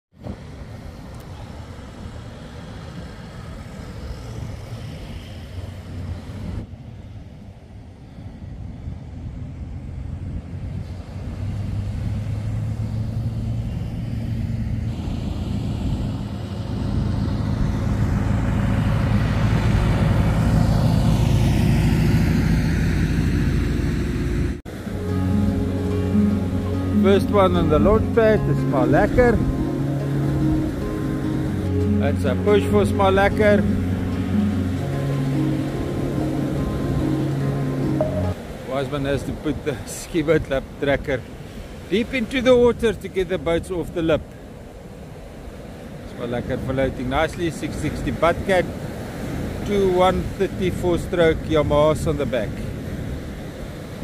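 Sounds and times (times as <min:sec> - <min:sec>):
vehicle engine passing by: 0:08.9 - 0:28.7.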